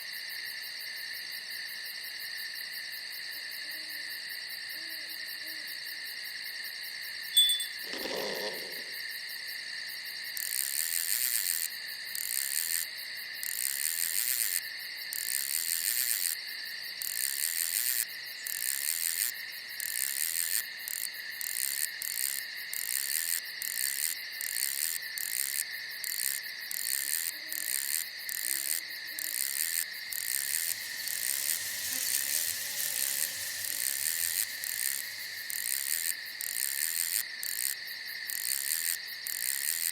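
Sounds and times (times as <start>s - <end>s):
crickets trilling: 0.0s - 39.9s
high pulsing chirping: 7.4s - 8.9s.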